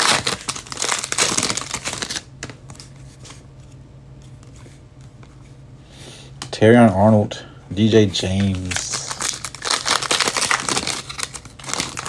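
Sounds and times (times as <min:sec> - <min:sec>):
card pack crackling and rustling: 0:00.0 - 0:03.8, 0:08.2 - 0:12.0.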